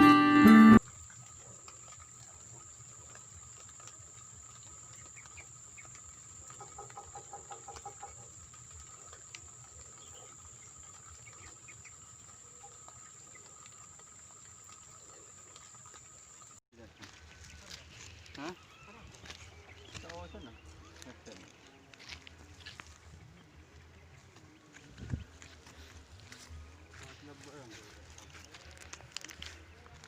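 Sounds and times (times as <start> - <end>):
bird calls and chirps: 17.0 - 22.0.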